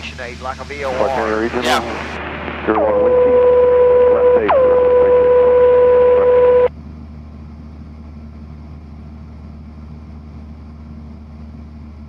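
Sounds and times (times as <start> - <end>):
loud steady tone: 0.0 - 6.7
airplane engine droning: 0.0 - 12.0.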